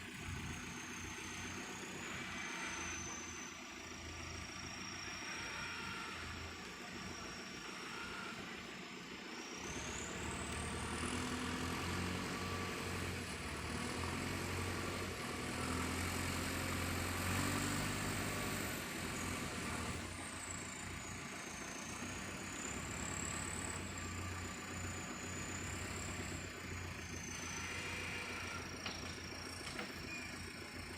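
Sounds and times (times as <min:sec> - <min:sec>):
high whine drifting in pitch: 0:00.0 - 0:12.8
heavy diesel engines running: 0:00.0 - 0:30.9.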